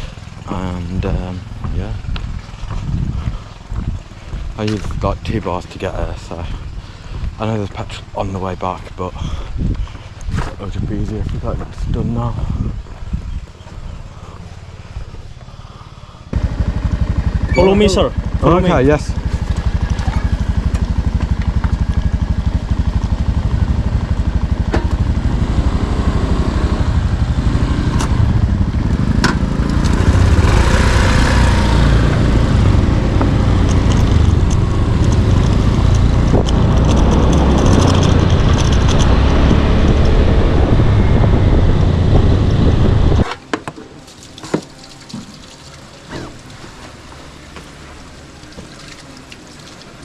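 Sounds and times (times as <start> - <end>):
road and wind noise: 0.0 - 50.0
motorbike engine at speed: 16.3 - 43.4.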